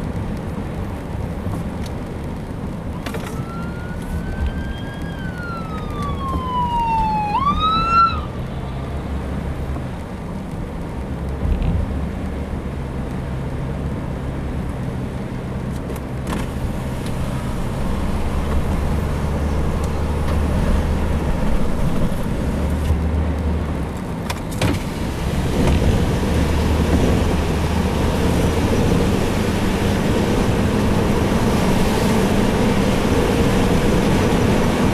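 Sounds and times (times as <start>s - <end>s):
vehicle rumble with road noise: 0.0s - 34.9s
siren wailing: 3.2s - 8.6s.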